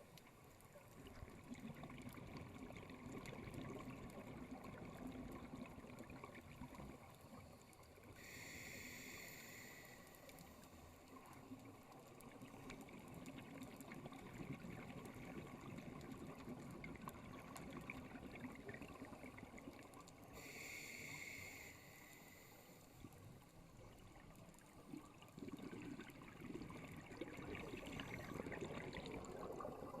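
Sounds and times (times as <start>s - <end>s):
underwater rumble and bubbles: 0.0s - 30.0s
scuba regulator hiss: 8.2s - 10.3s, 20.4s - 22.8s.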